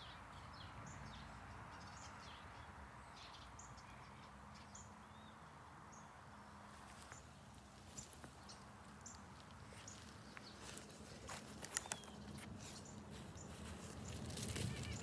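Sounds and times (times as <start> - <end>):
light clicks and rustles: 6.9 - 15.0.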